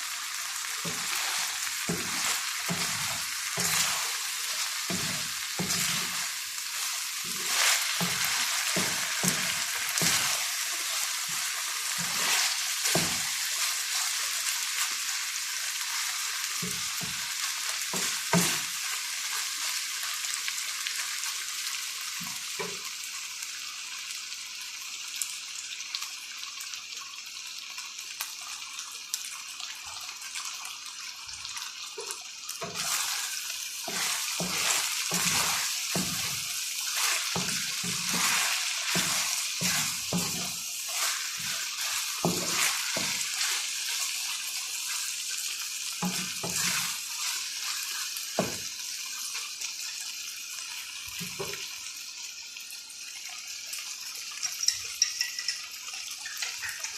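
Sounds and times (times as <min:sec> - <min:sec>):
food sizzling in hot oil: 0:00.0 - 0:56.9
utensil scraping a pan: 0:00.8 - 0:14.2, 0:32.6 - 0:44.1, 0:46.0 - 0:48.0.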